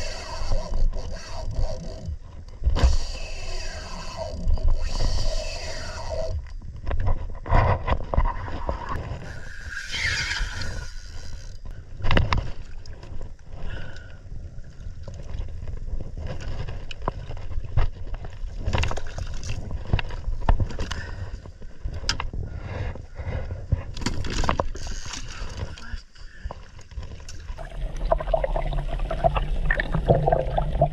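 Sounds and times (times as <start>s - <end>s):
water sloshing against hull: 0.0s - 30.9s
knocks and scrapes on boat: 6.8s - 9.3s.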